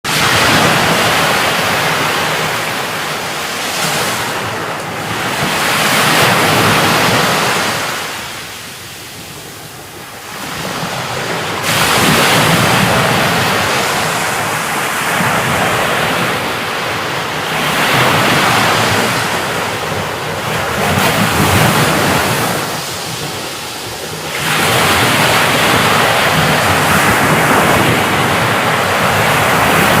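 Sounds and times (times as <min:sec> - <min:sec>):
heavy rain: 0:11.6 - 0:30.0.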